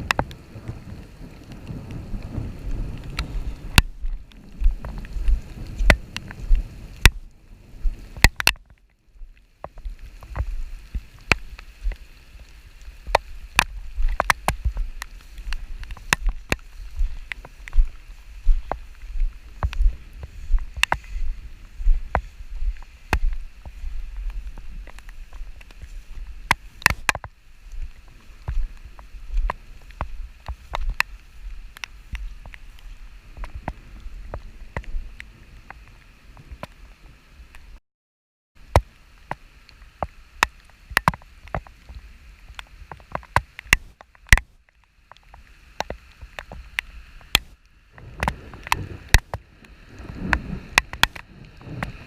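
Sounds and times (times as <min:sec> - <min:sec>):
low wind rumble: 0:00.0 - 0:37.8, 0:46.6 - 0:52.0
rain hiss: 0:00.0 - 0:37.8, 0:38.6 - 0:52.0
raindrops tapping close by: 0:00.0 - 0:37.8, 0:38.6 - 0:52.0.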